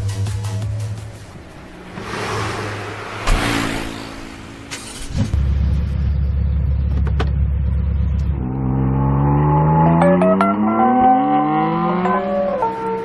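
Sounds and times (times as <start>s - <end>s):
motor vehicle engine revving: 1.6s - 6.1s, 8.1s - 13.0s.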